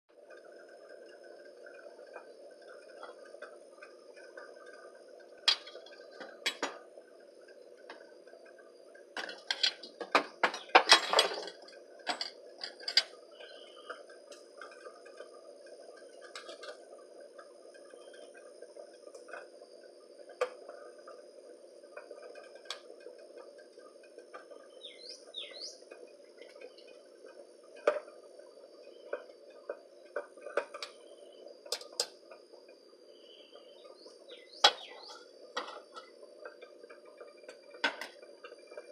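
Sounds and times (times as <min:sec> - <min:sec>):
high insect drone: 0:00.1 - 0:38.9
steady low hiss: 0:00.1 - 0:38.9
bird chirps: 0:13.3 - 0:14.0, 0:24.7 - 0:25.8, 0:33.1 - 0:35.3.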